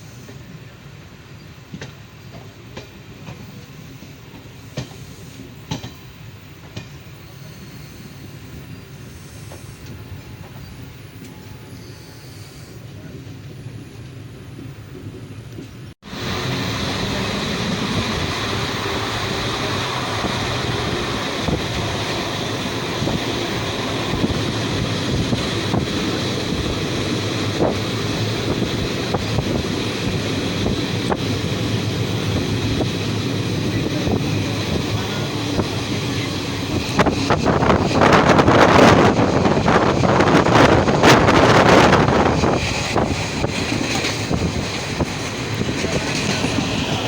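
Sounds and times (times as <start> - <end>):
train wheels rumbling on track: 0.0 - 47.0
wind buffeting microphone: 13.0 - 47.0.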